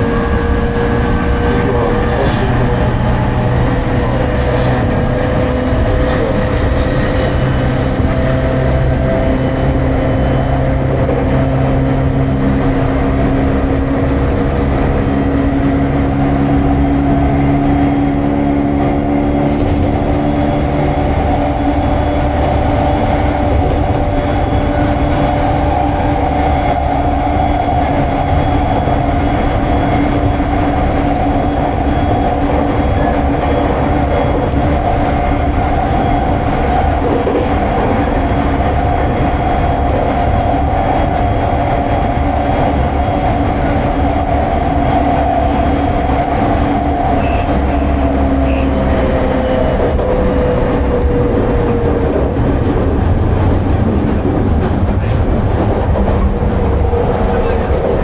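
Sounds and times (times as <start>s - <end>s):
train motor whine: 0.0s - 58.0s
wheels rumbling on track: 0.0s - 58.0s.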